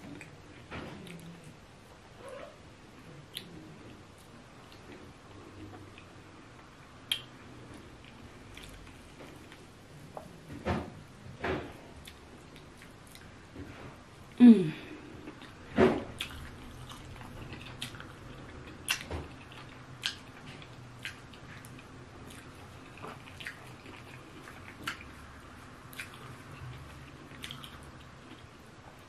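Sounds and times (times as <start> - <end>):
wet chewing mouth sounds: 16.2 - 28.6.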